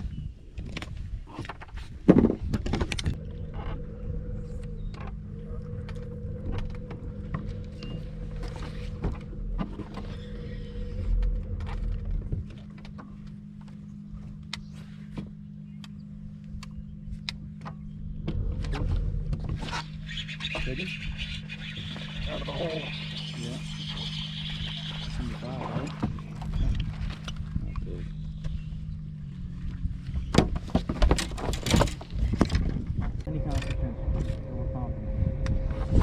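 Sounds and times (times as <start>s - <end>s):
electric trolling motor humming: 2.5s - 36.0s
clicks and knocks on boat: 30.1s - 33.3s.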